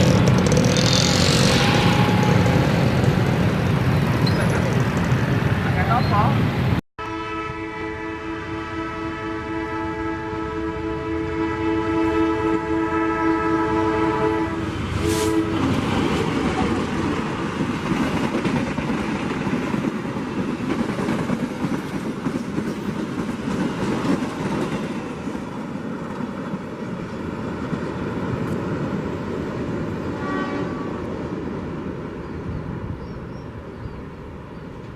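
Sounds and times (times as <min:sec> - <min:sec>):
train rumbling past at speed: 0:00.0 - 0:34.9
train horn multi-tone chord: 0:00.7 - 0:02.7, 0:07.0 - 0:15.9, 0:30.2 - 0:31.1.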